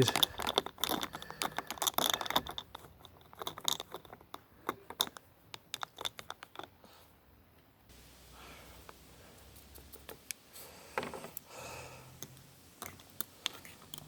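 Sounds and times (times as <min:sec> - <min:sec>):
metal parts clicking in glass jar: 0:00.0 - 0:06.7.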